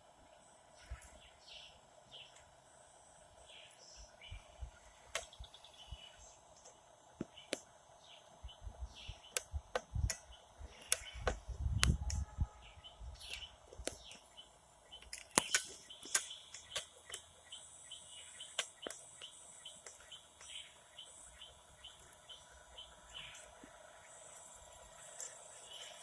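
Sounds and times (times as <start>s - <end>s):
birds chirping: 0.0s - 26.0s
sharp clicks and knocks: 15.0s - 17.3s.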